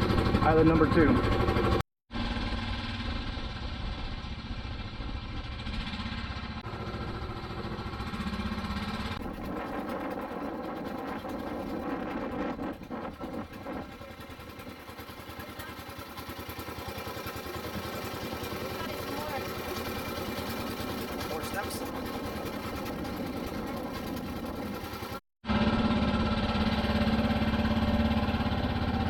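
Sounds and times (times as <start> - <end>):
boat engine droning: 0.0 - 29.0.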